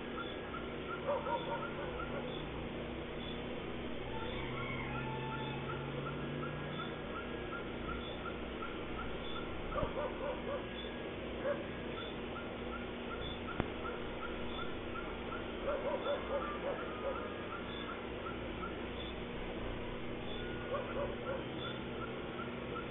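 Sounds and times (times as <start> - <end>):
animal lower yelps: 0.0 - 2.5, 4.0 - 19.1, 20.3 - 22.9
animal high chirps: 4.1 - 11.0, 11.9 - 19.2.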